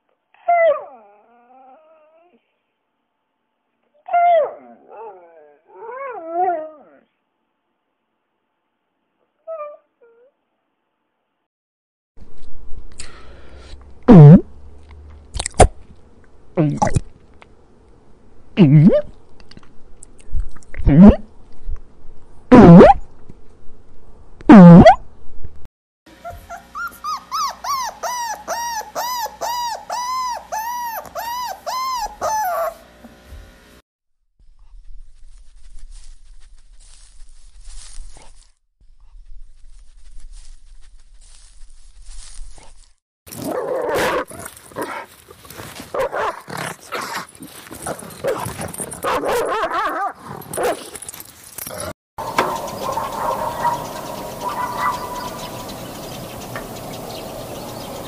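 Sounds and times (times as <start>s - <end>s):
dog whining: 0.4s - 2.5s, 4.0s - 7.1s, 9.4s - 10.4s, 26.2s - 32.8s, 52.2s - 56.0s
dog yipping: 26.2s - 32.8s, 52.2s - 56.0s.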